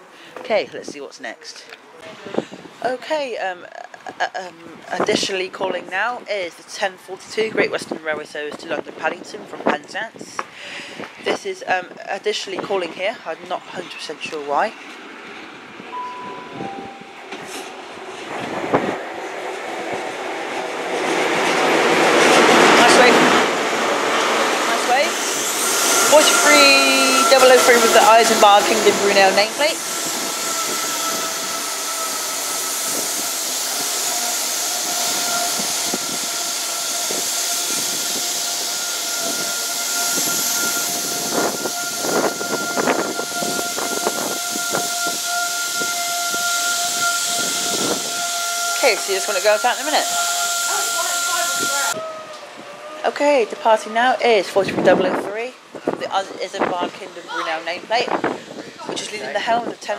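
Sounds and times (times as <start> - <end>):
train engine and wheel noise: 0.0 - 59.9
short high tone: 15.9 - 17.8, 48.8 - 52.0.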